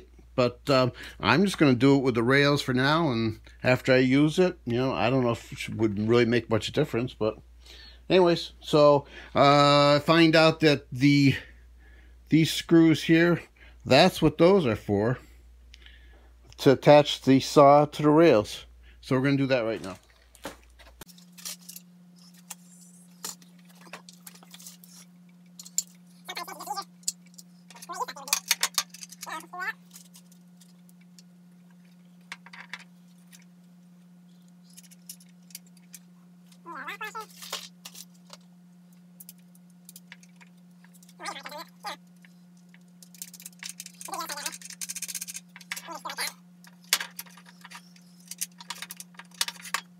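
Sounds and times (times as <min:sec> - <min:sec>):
steady low hum: 0:00.0 - 0:49.9
screws and bolts clinking: 0:43.0 - 0:45.9, 0:46.7 - 0:49.9.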